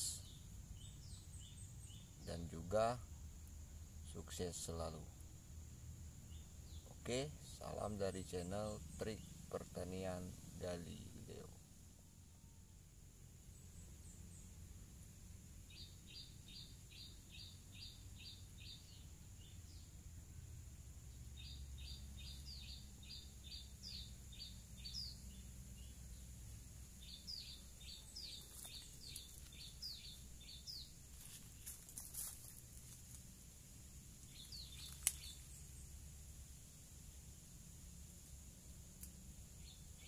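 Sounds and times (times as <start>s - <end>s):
faint clicks: 34.2s - 35.4s.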